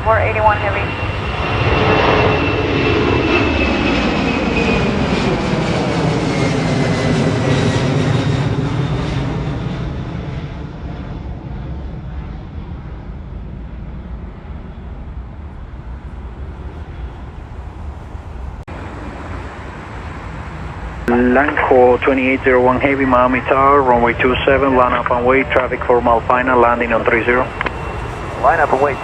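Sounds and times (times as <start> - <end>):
high engine whine: 0.0 - 29.0
jet engines roaring past: 0.0 - 29.0.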